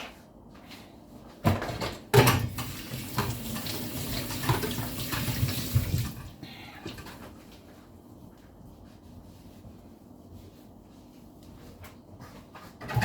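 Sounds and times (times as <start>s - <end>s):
tap water running into sink: 2.3s - 6.3s.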